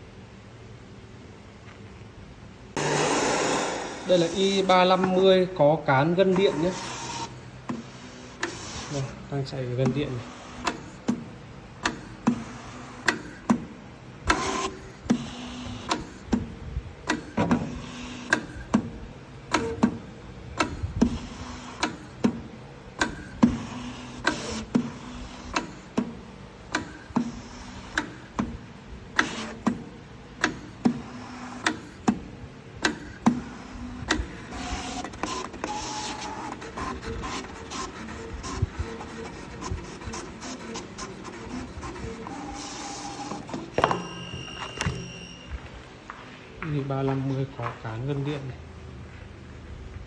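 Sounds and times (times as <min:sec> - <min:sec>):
sharp clicks of plotter: 0:09.6 - 0:18.9, 0:19.5 - 0:20.0, 0:20.6 - 0:21.2, 0:21.8 - 0:29.8, 0:30.4 - 0:32.2, 0:32.8 - 0:33.4, 0:34.0 - 0:45.1.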